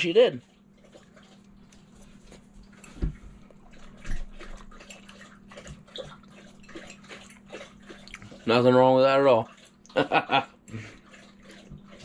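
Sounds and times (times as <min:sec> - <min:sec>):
person chewing food: 0:00.4 - 0:08.5, 0:10.6 - 0:12.0.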